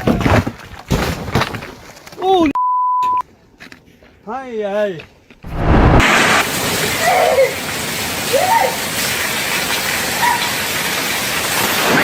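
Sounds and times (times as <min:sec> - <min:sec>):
water rushing: 0:05.5 - 0:12.0.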